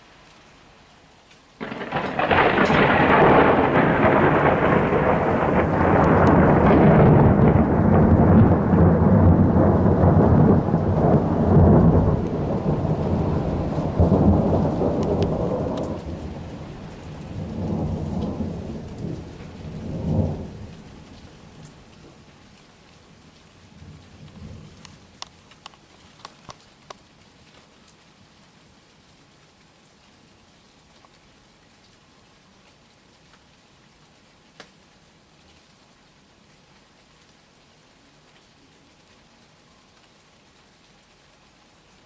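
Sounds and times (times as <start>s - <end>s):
rain falling: 0.0s - 42.0s
thunder rumbling: 1.6s - 21.9s.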